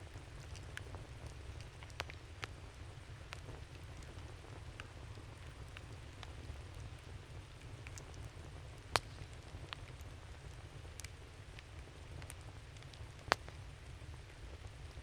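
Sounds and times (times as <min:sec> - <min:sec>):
campfire crackling: 0:00.0 - 0:15.0
sharp pops from fire: 0:08.8 - 0:09.9, 0:13.2 - 0:13.6.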